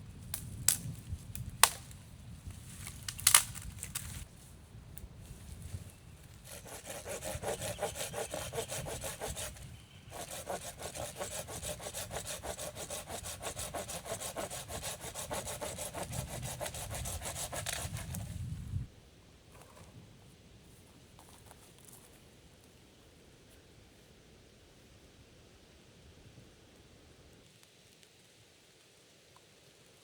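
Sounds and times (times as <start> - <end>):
handsaw cutting wood: 6.4 - 18.3.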